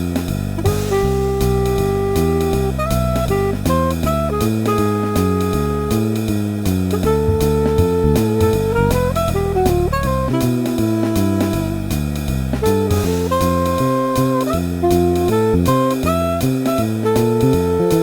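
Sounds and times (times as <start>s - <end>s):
bass line: 0.0s - 18.0s
drum kit keeping time: 0.0s - 18.0s
lead melody of held notes: 0.6s - 18.0s
guitar chords: 7.0s - 11.7s.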